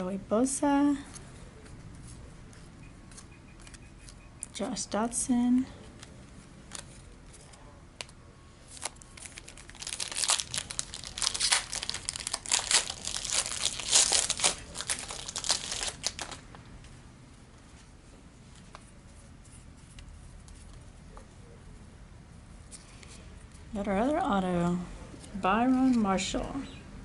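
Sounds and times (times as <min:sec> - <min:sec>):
wrapper crinkling: 0:08.7 - 0:16.6.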